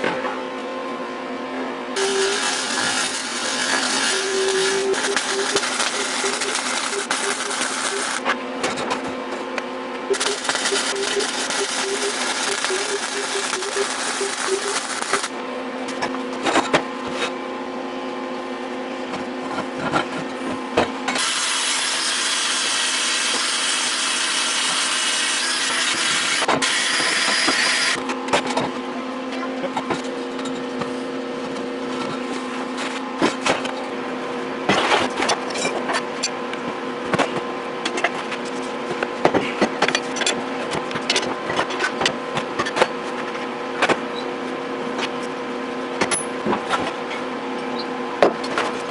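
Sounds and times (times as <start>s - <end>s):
steady hum: 0.0s - 21.2s
sawing and scraping metal: 2.0s - 8.2s, 10.1s - 15.3s.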